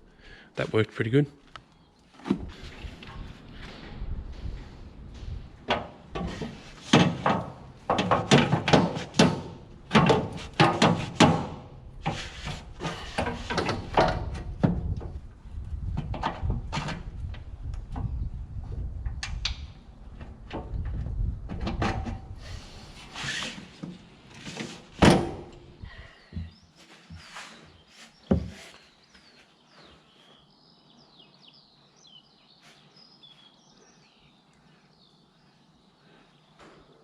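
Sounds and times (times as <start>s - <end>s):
knocking and clattering on machine: 6.9s - 11.6s
small birds chirping: 25.8s - 37.0s.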